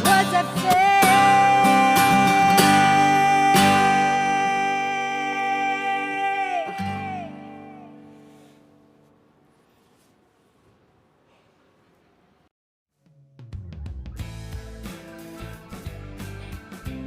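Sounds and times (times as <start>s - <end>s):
acoustic guitar chords ringing: 0.0s - 8.9s.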